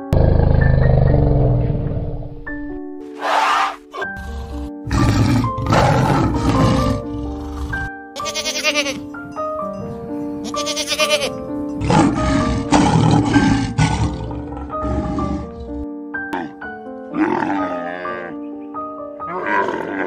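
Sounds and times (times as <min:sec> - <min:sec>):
music with held notes: 0:03.8 - 0:20.0
goat bleating: 0:08.2 - 0:09.0, 0:10.4 - 0:11.4.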